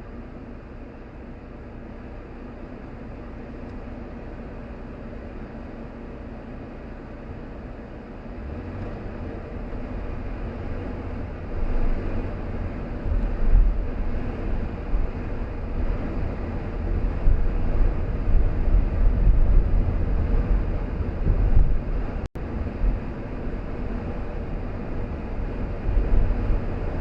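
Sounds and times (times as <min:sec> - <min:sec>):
road and tyre noise: 0:00.0 - 0:27.0
wind buffeting microphone: 0:09.1 - 0:27.0.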